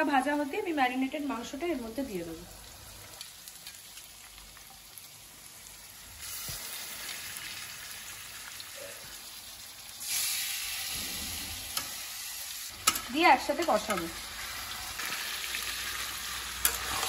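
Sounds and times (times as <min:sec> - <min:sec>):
onions sizzling in hot oil: 0:00.0 - 0:17.0
steel spatula scraping: 0:13.7 - 0:17.0.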